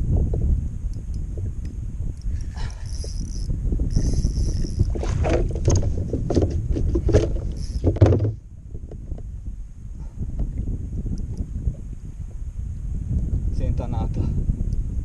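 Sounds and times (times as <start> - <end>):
water noise: 0.0 - 13.3
wind noise: 0.0 - 15.0
knocks and splashes: 4.8 - 8.4.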